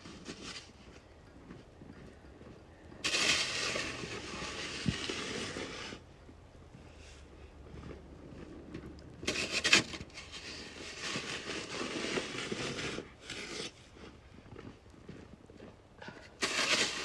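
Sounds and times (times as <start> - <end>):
rough scraping and rubbing: 0.0 - 1.0, 3.0 - 6.1, 7.0 - 14.2, 16.2 - 17.0.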